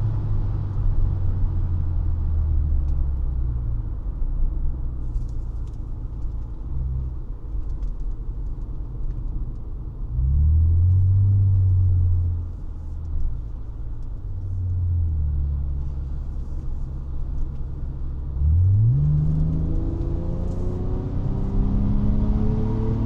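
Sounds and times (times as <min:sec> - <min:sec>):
car engine droning: 0:05.0 - 0:23.0.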